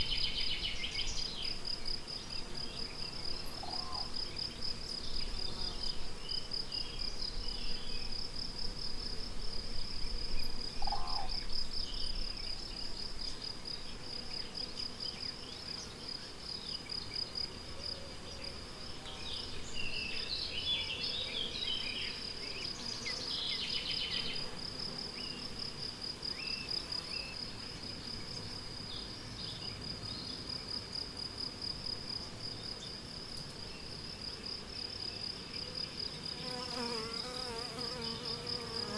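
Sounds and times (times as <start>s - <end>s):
crickets chirping: 0.0s - 38.9s
songbird calls: 3.4s - 4.1s, 10.8s - 12.6s.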